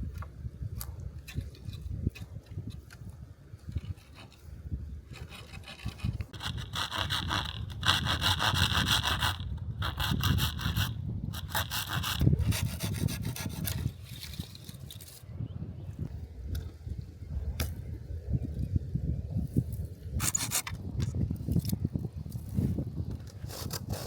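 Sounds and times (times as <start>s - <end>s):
hand saw cutting wood: 5.1s - 15.0s, 20.2s - 20.8s, 23.3s - 24.0s.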